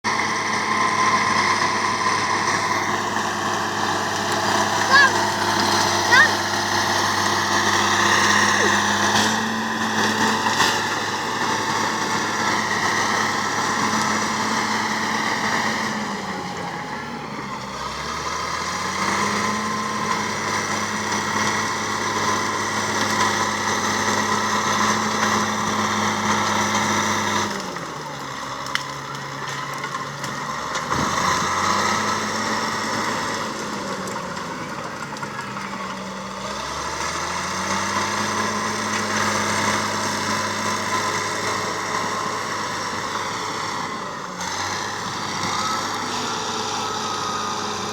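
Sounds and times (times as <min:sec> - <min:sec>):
bulldozer diesel engine running: 0:00.0 - 0:47.9.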